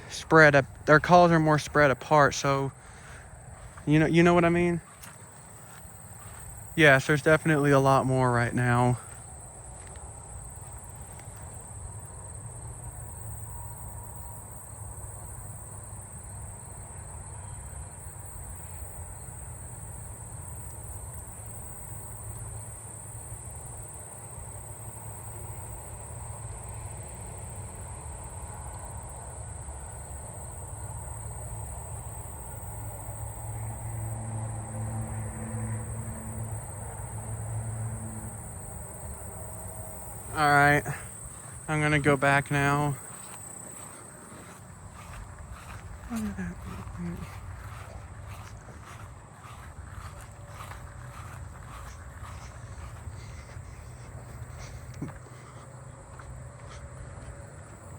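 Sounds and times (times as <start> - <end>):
katydids and crickets chorus: 0.0 - 57.9.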